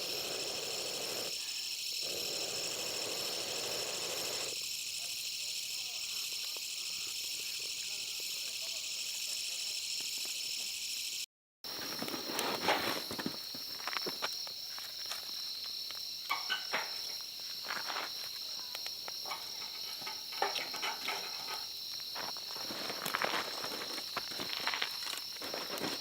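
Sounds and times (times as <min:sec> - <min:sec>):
insect chorus chirring: 0:00.0 - 0:26.0
rustling and crunching movement: 0:11.7 - 0:15.7, 0:19.4 - 0:26.0.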